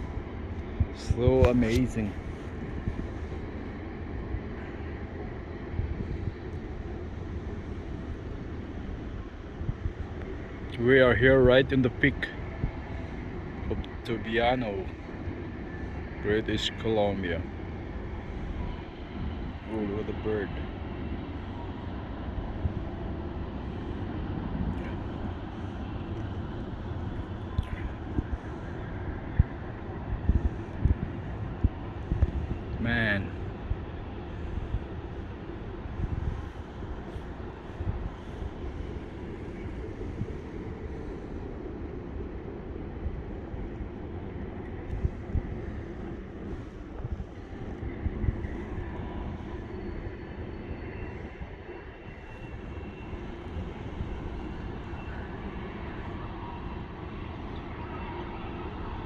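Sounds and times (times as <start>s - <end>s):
freight train rumbling: 0.0s - 59.0s
wind buffeting microphone: 0.0s - 59.0s.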